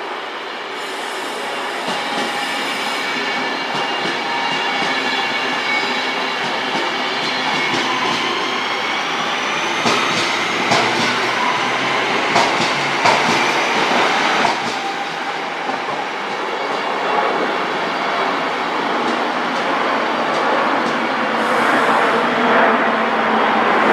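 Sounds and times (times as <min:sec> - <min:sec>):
train running on rails: 0:00.0 - 0:23.9.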